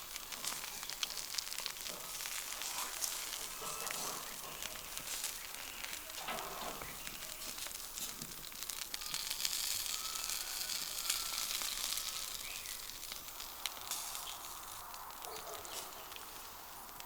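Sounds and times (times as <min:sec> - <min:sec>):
food sizzling over campfire: 0:00.0 - 0:17.0.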